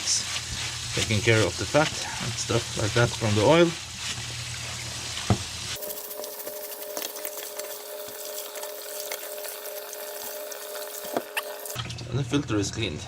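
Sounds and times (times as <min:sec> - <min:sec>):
popping suds crackle: 0:00.0 - 0:11.8
foam filter squelching: 0:00.0 - 0:11.9.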